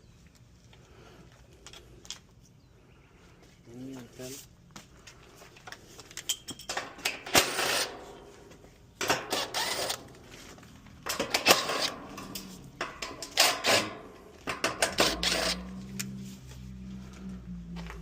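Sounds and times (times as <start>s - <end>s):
scraping and rattling: 9.0s - 16.5s.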